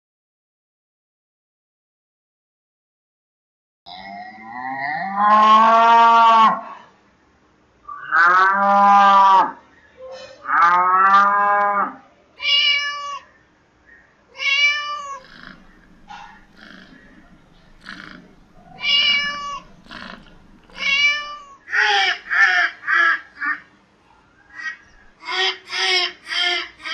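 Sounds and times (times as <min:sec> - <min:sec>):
cow mooing: 0:03.9 - 0:06.6, 0:07.9 - 0:09.6, 0:10.4 - 0:12.0, 0:15.2 - 0:21.0
cat meowing: 0:12.4 - 0:13.3, 0:14.3 - 0:21.9.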